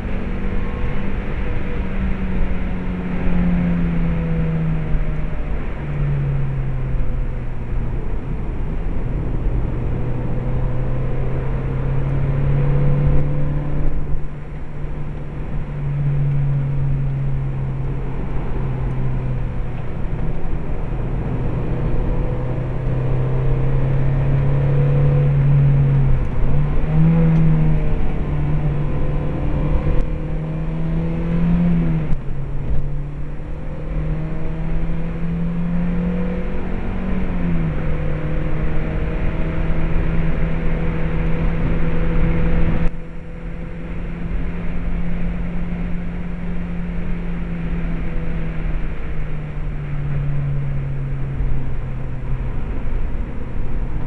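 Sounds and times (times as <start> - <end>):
car engine pulling under load: 0.0 - 54.0
tyre and road noise: 0.0 - 54.0.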